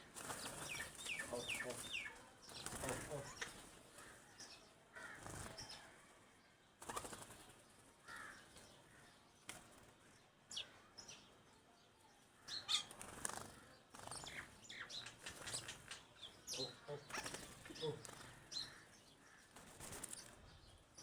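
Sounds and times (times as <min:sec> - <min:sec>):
small birds chirping: 0:00.0 - 0:21.0
wings flapping: 0:00.1 - 0:03.7, 0:05.2 - 0:05.6, 0:06.8 - 0:07.5, 0:12.8 - 0:16.1, 0:17.1 - 0:18.4, 0:19.5 - 0:20.4.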